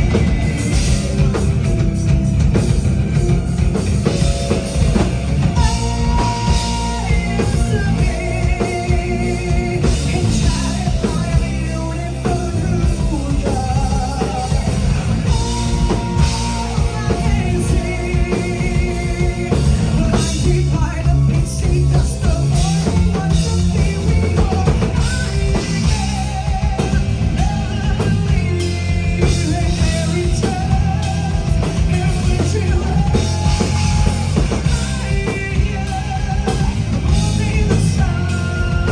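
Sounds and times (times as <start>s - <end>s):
rock band with singing: 0.0s - 38.9s.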